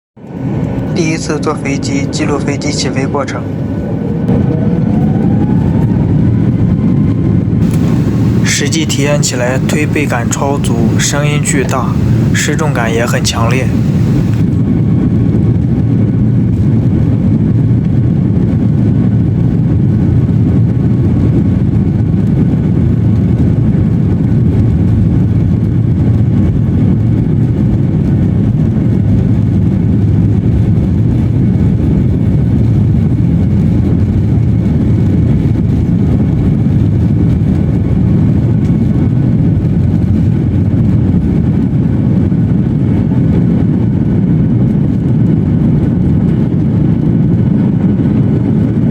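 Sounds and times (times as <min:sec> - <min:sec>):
airliner engines rumbling: 0:00.3 - 0:19.3.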